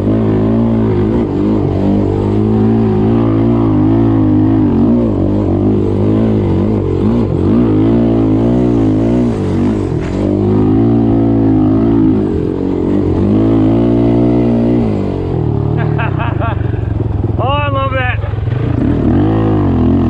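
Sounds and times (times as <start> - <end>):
off-road motorbike engine revving: 0.0 - 20.0.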